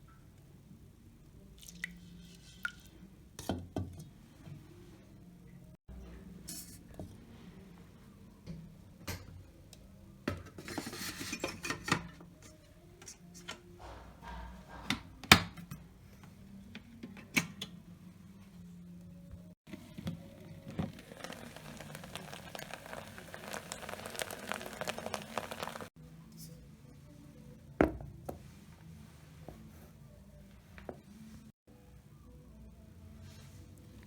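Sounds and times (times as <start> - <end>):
utensils clinking against dishes: 10.5 - 13.7.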